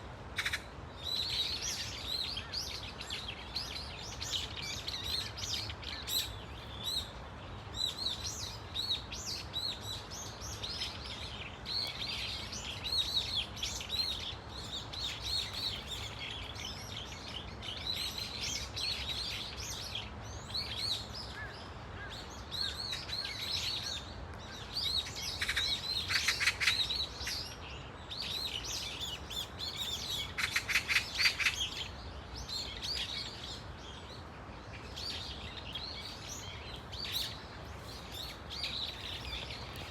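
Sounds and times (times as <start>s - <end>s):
harsh rattling bird calls: 0.4s - 39.9s
flock of birds calling: 20.9s - 27.6s, 28.3s - 33.7s.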